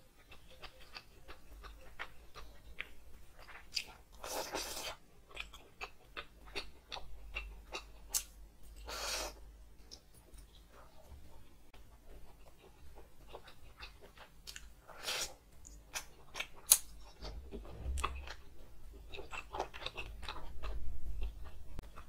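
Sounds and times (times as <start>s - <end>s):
person chewing with wet smacks: 0.1s - 18.4s, 19.0s - 22.0s
dull low bumps: 17.2s - 19.0s.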